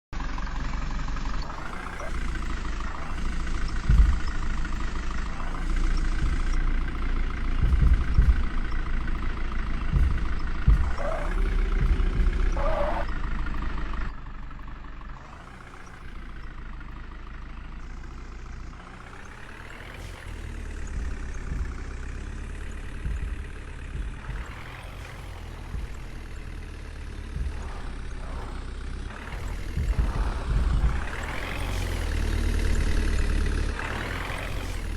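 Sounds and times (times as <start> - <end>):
heavy diesel engine running: 0.0 - 34.9
low thumps: 1.4 - 14.1, 20.8 - 33.9.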